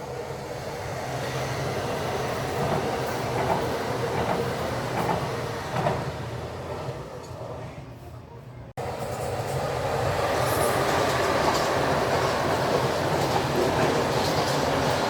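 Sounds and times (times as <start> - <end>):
train rumbling on rails: 0.0 - 15.0
wheel clatter: 10.9 - 15.0.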